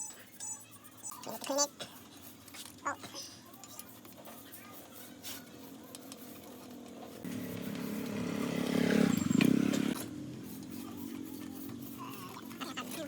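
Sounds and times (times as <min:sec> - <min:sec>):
small engine running: 0:04.7 - 0:13.0.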